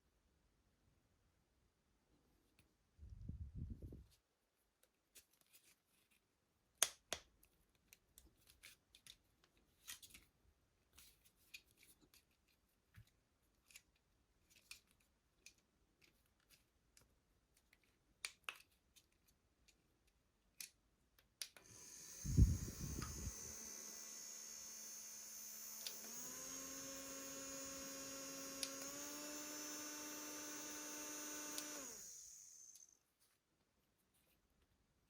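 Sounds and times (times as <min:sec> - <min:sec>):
fan motor hum and whine: 0:21.7 - 0:32.8
air gust on microphone: 0:22.2 - 0:23.4.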